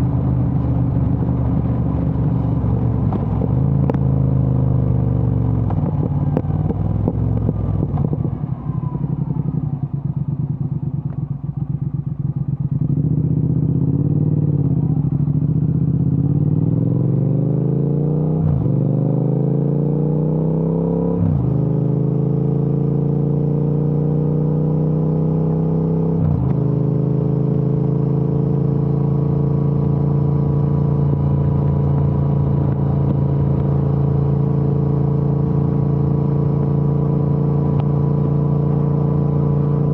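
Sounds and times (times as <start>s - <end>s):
motorcycle engine crackling and popping: 0.0s - 13.8s, 26.3s - 26.8s, 28.4s - 39.9s
motorcycle engine accelerating: 0.0s - 39.9s.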